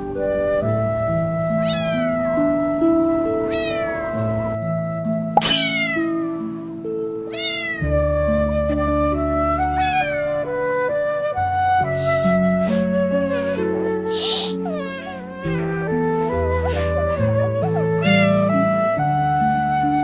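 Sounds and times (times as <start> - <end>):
slow background music: 0.0 - 20.0
cat meowing: 1.6 - 2.6, 3.4 - 4.4, 5.4 - 6.6, 7.3 - 8.0, 9.6 - 10.5, 12.7 - 18.6.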